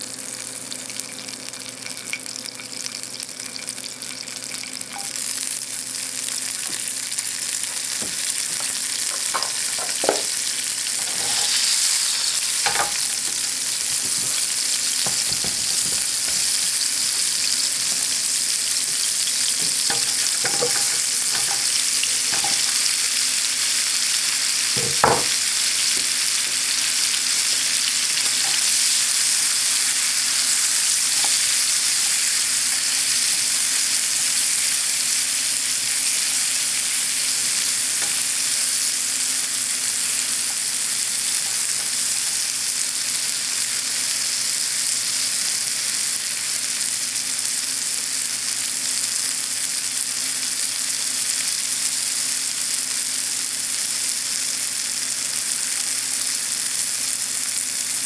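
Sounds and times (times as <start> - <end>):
food sizzling in a frying pan: 0.0 - 58.0.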